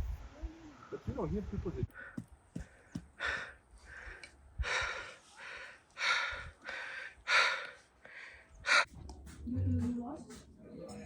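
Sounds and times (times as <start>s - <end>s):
person breathing hard: 1.9s - 8.9s.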